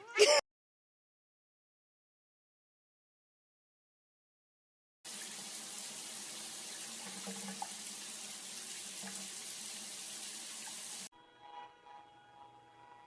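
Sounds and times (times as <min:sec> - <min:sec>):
running water rushing: 0:05.1 - 0:11.1.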